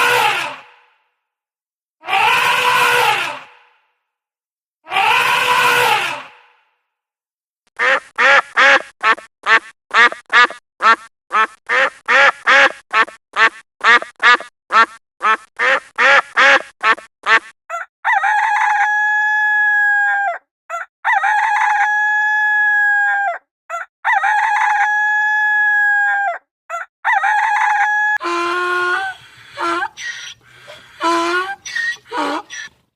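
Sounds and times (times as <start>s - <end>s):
chickens calling: 27.2s - 32.8s.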